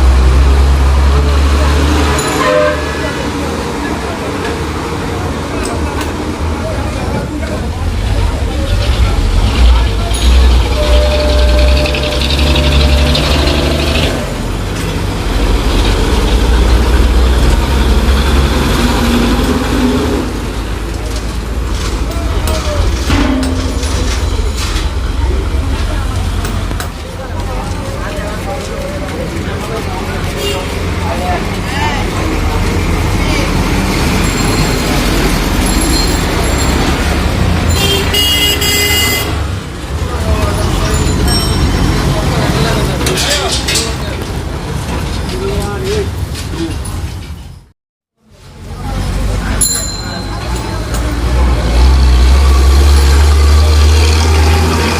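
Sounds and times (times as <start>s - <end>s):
truck engine rumbling: 0.0s - 47.7s
vehicle horn: 2.3s - 3.2s, 10.7s - 14.3s, 37.7s - 39.4s.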